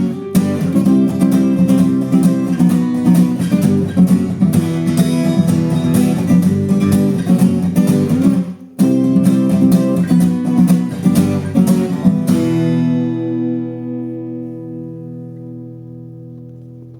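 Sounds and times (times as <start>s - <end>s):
acoustic guitar strumming: 0.0s - 16.9s.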